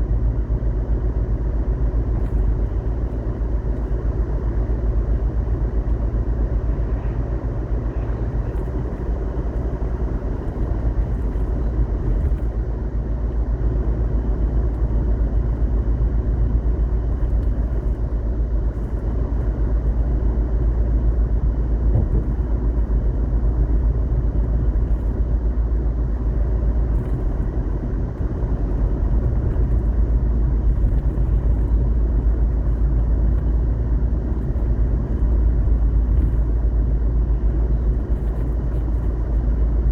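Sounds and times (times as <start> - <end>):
road vehicle rumble: 0.0 - 39.9.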